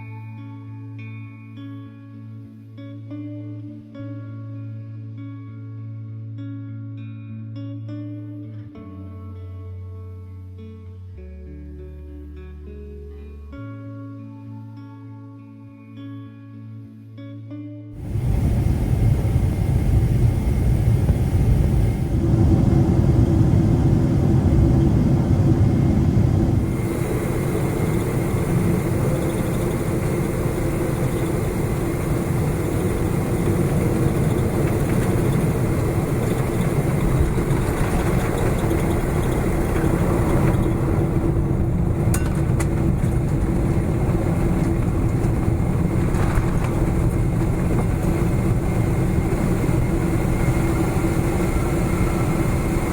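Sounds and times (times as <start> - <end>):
airliner cabin rumble: 18.0 - 52.9
jet engine hum with whine: 18.0 - 52.9.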